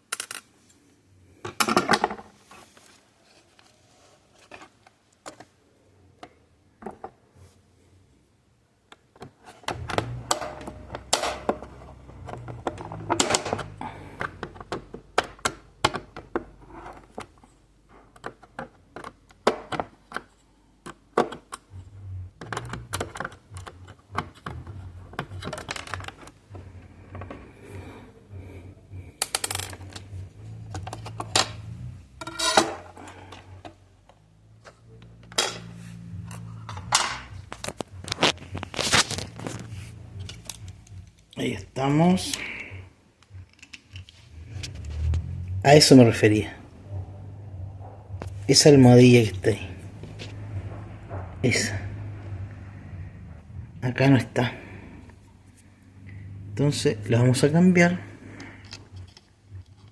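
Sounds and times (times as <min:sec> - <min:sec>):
handling noise: 0:28.7 - 0:45.4.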